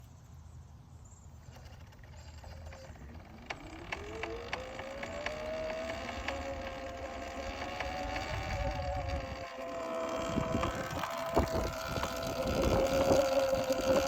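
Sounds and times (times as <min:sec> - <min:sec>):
electric motor whining: 0:01.4 - 0:14.0.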